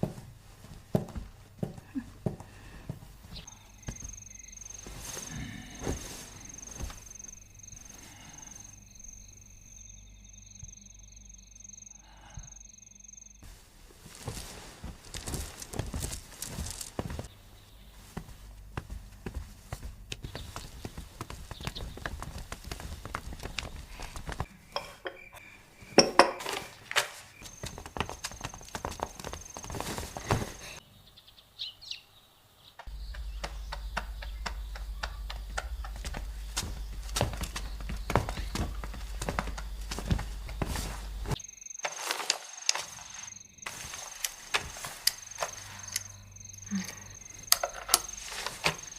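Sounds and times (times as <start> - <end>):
cricket trilling: 2.6 - 13.5, 14.1 - 18.1, 19.9 - 30.8, 32.8 - 48.9
dishes clinking: 24.7 - 26.7.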